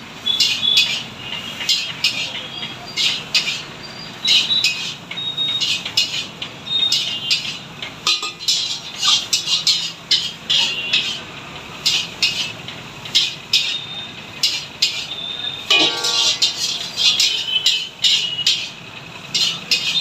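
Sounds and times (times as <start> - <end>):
metal spatula scraping a wok: 8.2 - 11.2, 15.7 - 17.8, 19.4 - 20.0.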